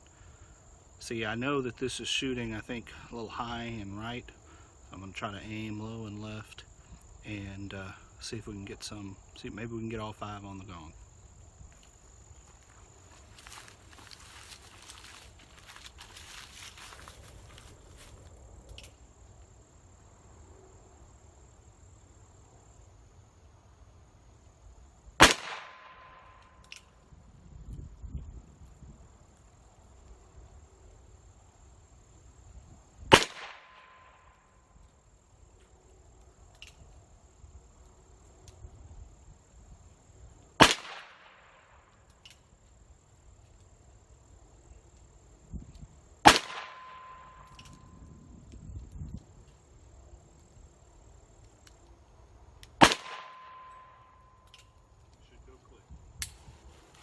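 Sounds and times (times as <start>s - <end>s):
high insect buzz: 8.0s - 25.2s.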